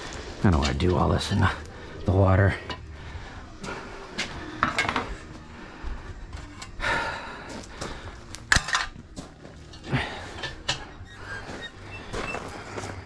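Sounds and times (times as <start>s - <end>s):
metal clanks and scrapes: 4.1s - 5.3s, 6.2s - 6.8s, 8.4s - 12.9s.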